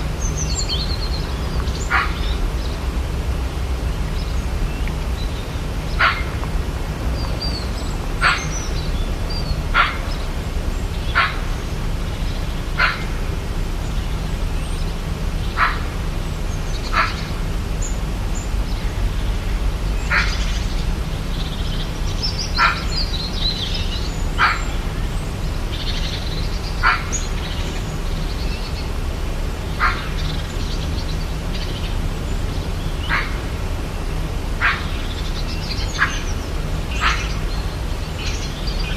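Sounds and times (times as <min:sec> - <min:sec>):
animal giving sharp calls: 0:09.7 - 0:10.2.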